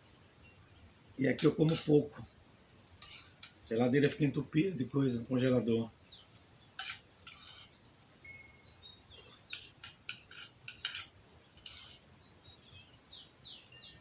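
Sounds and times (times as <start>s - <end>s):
small birds chirping: 0.0s - 14.0s
cutlery clinking against a dish: 6.8s - 7.6s, 9.4s - 12.0s.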